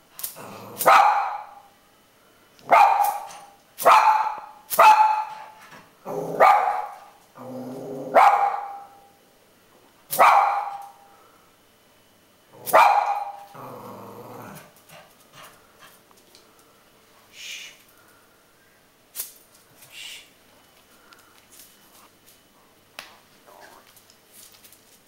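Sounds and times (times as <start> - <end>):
dog growling: 0.3 - 0.9, 6.0 - 6.5, 7.4 - 8.2, 13.4 - 15.5
dogs barking: 0.8 - 1.7, 2.6 - 7.2, 8.1 - 9.1, 10.1 - 11.0, 12.6 - 13.5.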